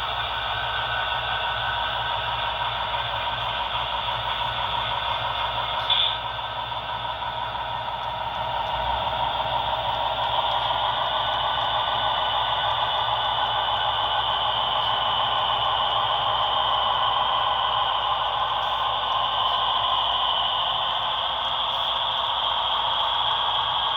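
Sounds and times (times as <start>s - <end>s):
model train whirring on track: 0.0s - 23.9s
sharp squeak: 5.8s - 6.2s.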